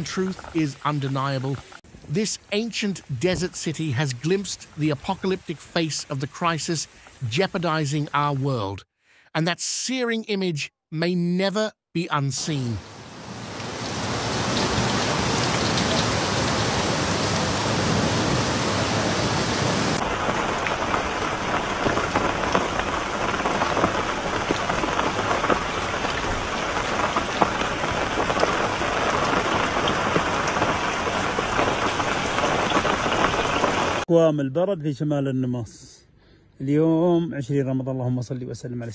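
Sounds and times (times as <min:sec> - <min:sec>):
rain and hail hitting street: 0:00.0 - 0:08.6, 0:12.5 - 0:34.1
heavy rain pouring: 0:00.0 - 0:08.8, 0:12.1 - 0:34.1
rushing flood water: 0:00.0 - 0:08.8, 0:12.1 - 0:34.1.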